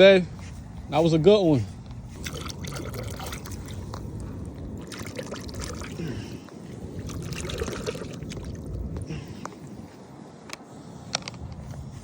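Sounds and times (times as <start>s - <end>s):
water lapping and trickling: 2.1s - 10.7s.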